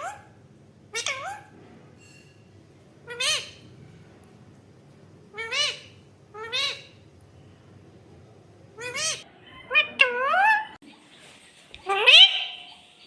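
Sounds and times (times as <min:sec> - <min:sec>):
parrot meow-like calls: 0:08.8 - 0:10.8.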